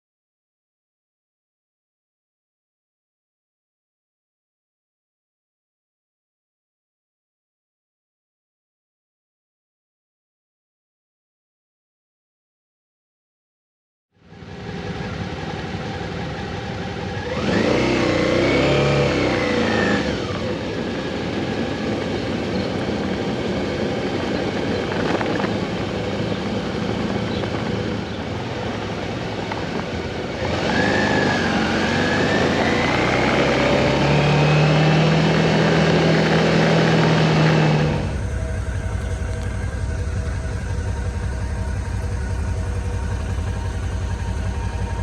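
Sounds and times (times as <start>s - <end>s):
motorcycle engine: 14.2s - 45.0s
road wind noise: 14.2s - 45.0s.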